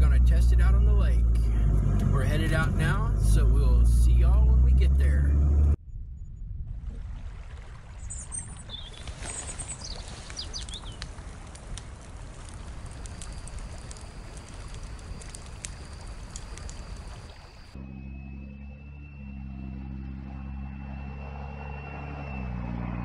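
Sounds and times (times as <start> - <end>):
birds chirping: 8.0 - 11.1
light ticks: 10.2 - 17.2.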